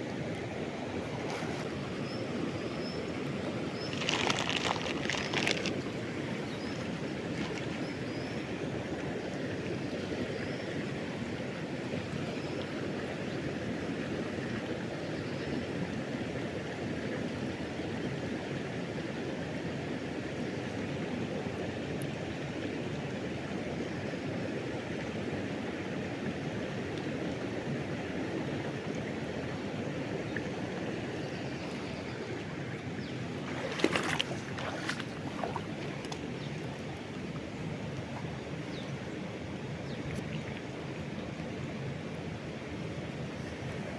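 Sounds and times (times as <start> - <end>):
river water rushing: 0.0 - 14.6, 26.0 - 43.9
sharp knocks or splashes: 3.9 - 5.8, 33.4 - 36.2.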